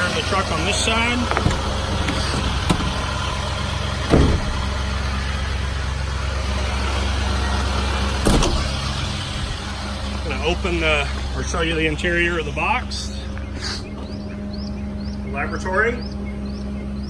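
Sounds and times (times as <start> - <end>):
diesel engine idling: 0.0 - 17.0
short knocks: 0.8 - 5.2.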